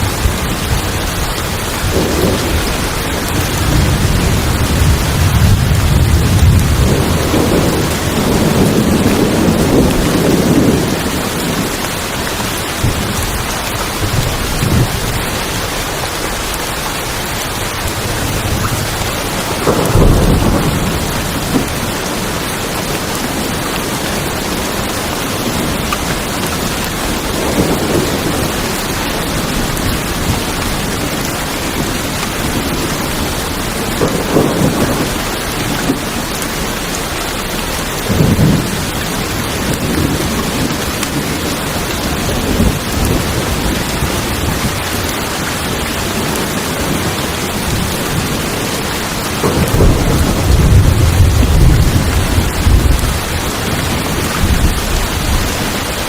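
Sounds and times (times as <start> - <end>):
heavy rain on tin roofs: 0.0 - 56.0
thunder rumbling: 0.0 - 56.0
sharp thunder crack: 19.3 - 22.2, 33.8 - 36.1, 49.4 - 55.6.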